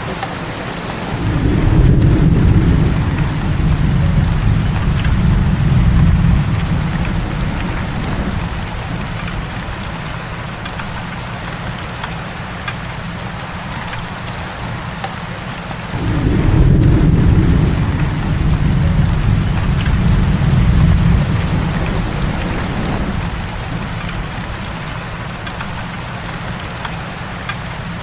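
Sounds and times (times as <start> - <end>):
heavy rain falling: 0.0 - 28.0
raindrop ticks: 0.1 - 28.0
low rumble of thunder: 0.8 - 11.1, 15.9 - 26.8.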